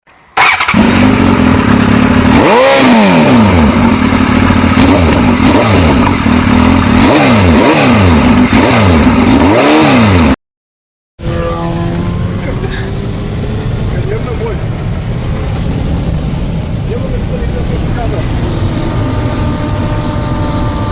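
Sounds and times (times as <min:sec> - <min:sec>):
motorcycle engine revving: 0:00.4 - 0:10.4, 0:11.2 - 0:20.9.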